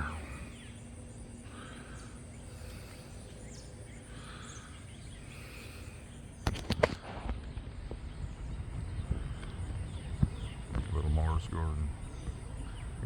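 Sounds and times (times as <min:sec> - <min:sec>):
pigeon wing claps: 0:06.4 - 0:07.1.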